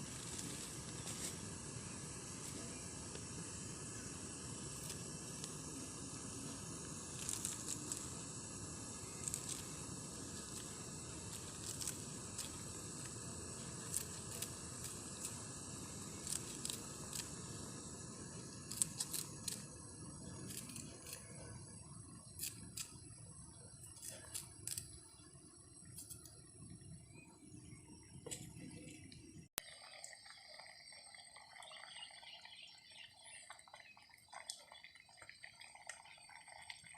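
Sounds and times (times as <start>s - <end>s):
low hiss: 0.0s - 29.5s
thin high steady drone: 0.0s - 29.5s.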